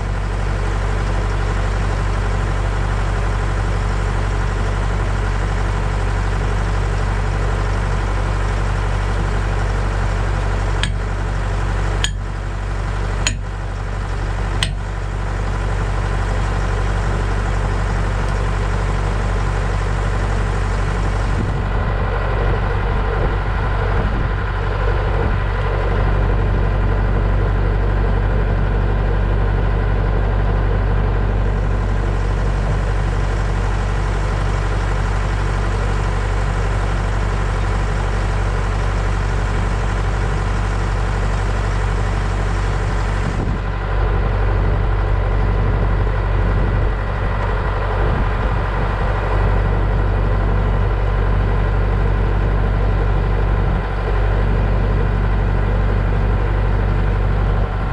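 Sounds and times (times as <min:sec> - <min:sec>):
backhoe engine idling: 0:00.0 - 0:57.9.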